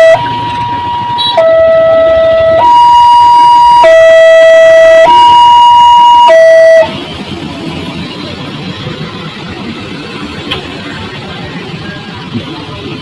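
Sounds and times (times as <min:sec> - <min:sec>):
electronic two-tone siren: 0:00.0 - 0:07.0.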